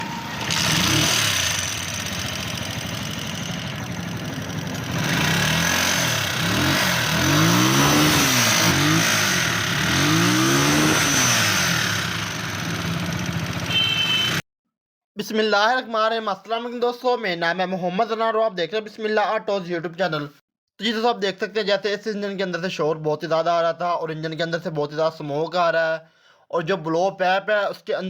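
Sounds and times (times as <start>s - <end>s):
rickshaw engine revving: 0.0s - 14.3s.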